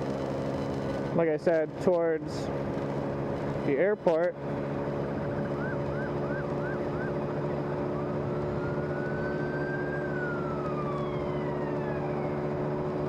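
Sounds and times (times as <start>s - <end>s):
engine hum: 0.0s - 13.0s
emergency vehicle siren: 5.0s - 13.0s.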